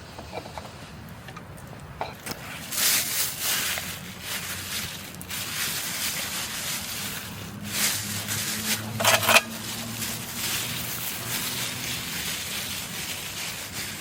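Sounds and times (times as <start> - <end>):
rustling and handling noises: 0.3 - 14.0
crinkly rustle: 1.6 - 14.0.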